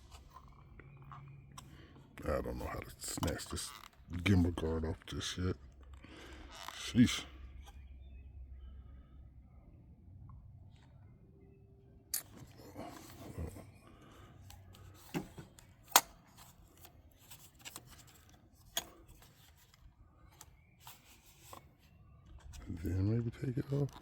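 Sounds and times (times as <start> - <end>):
plastic rubbing: 12.4 - 24.0.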